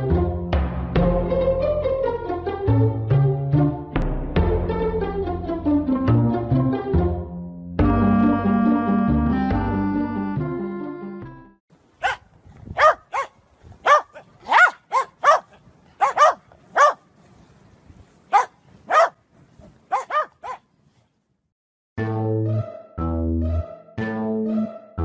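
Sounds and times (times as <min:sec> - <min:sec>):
music: 0:00.0 - 0:11.6, 0:22.0 - 0:25.0
dogs barking: 0:12.0 - 0:17.0, 0:18.3 - 0:19.2, 0:19.9 - 0:20.6.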